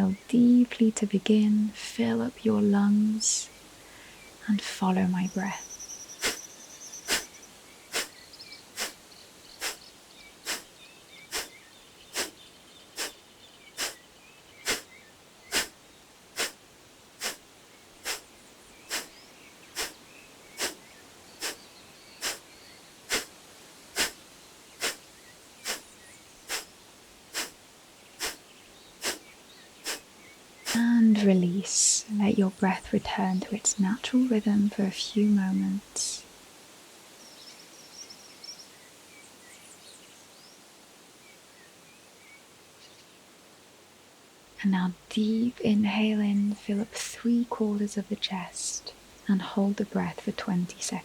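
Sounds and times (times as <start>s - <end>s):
quiet inhale: 3.7s - 4.4s, 6.2s - 12.4s, 13.0s - 15.8s, 16.4s - 16.6s, 17.2s - 24.2s, 24.8s - 26.7s, 27.3s - 27.6s, 28.2s - 31.0s
sharp exhales through nose: 6.2s - 9.0s, 9.6s - 10.7s, 11.3s - 12.4s, 13.0s - 13.2s, 13.8s - 14.0s, 14.6s - 15.8s, 16.4s - 16.6s, 17.2s - 17.4s, 18.0s - 18.3s, 18.9s - 19.2s, 19.8s - 22.5s, 23.1s - 24.2s, 24.8s - 25.0s, 25.6s - 25.9s, 26.5s - 26.7s, 27.3s - 27.6s, 28.2s - 28.4s, 29.0s - 30.8s.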